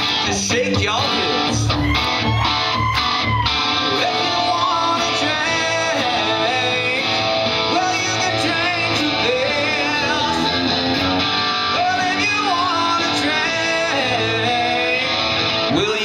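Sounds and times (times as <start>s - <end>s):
man singing: 0.0s - 1.8s, 3.8s - 11.0s, 11.6s - 16.0s
guitars strummed: 0.0s - 16.0s.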